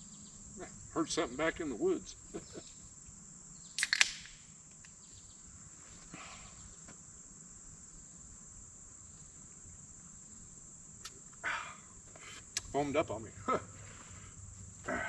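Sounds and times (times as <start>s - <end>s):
insects buzzing: 0.0s - 15.0s
drink can cracked open: 3.8s - 4.4s.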